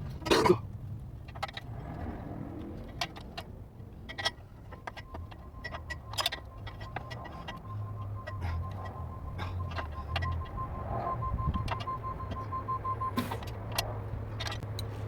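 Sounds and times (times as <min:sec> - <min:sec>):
metallic clicks and clanks of tools: 0:13.2 - 0:15.0.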